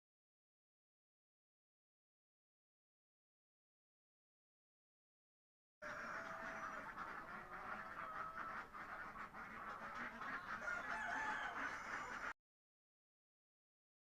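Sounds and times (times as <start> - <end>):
ducks quacking: 5.8 - 12.4.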